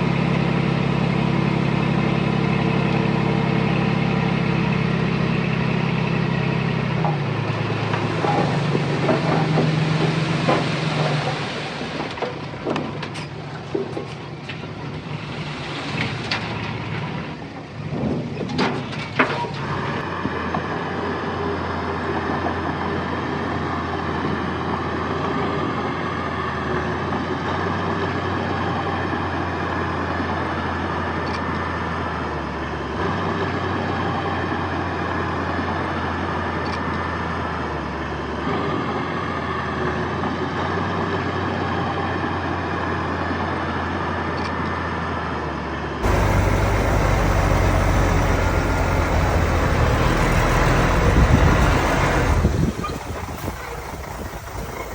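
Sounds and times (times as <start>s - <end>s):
deep engine rumble: 0.0s - 12.9s, 46.0s - 54.9s
earthmoving machinery diesel engines: 0.0s - 54.9s.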